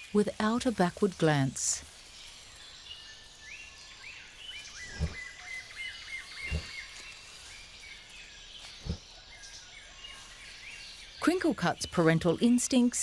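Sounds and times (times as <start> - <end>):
dull low thuds: 4.8 - 5.2, 6.4 - 6.8.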